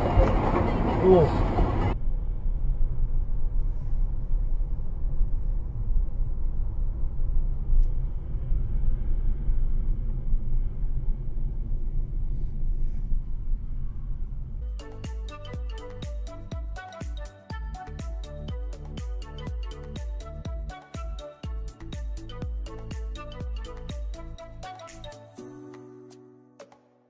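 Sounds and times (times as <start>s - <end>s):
car engine rumble: 0.0s - 16.5s
road noise: 0.0s - 16.9s.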